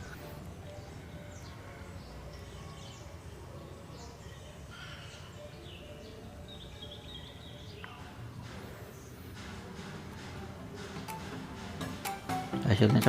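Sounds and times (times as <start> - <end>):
small birds chirping: 0.0 - 13.0
steady low background noise: 0.0 - 13.0.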